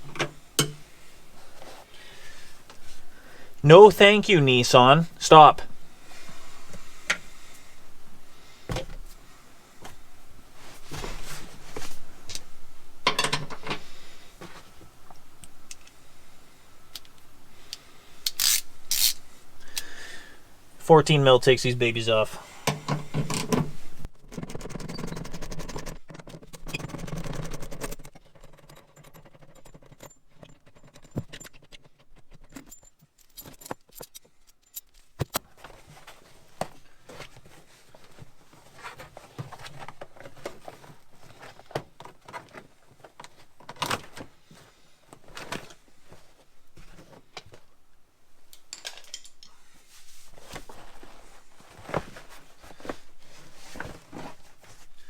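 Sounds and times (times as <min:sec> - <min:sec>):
metal tools and bolts clinking: 0:00.0 - 0:00.8, 0:13.0 - 0:13.8, 0:27.8 - 0:35.1, 0:48.6 - 0:49.6
rustling: 0:06.0 - 0:12.9, 0:49.5 - 0:55.0.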